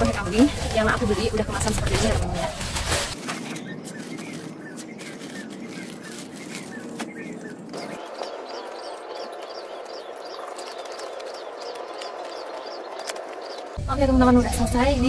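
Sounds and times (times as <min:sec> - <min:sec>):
bird chirping: 0:03.2 - 0:13.8.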